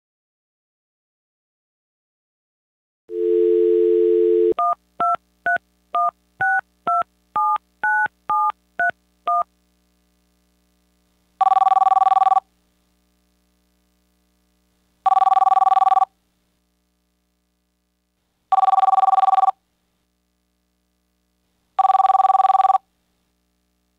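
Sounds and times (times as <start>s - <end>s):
telephone dial tone: 11.4s - 12.4s, 15.1s - 16.1s, 18.5s - 19.6s, 21.8s - 22.8s
telephone line ringing: 11.4s - 12.4s, 15.1s - 16.1s, 18.5s - 19.6s, 21.8s - 22.8s.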